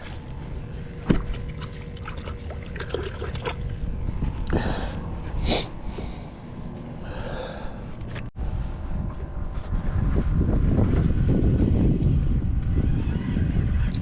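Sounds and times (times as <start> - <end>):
water splashing against boat: 0.0 - 4.7
wind buffeting microphone: 0.0 - 6.2, 8.4 - 14.0.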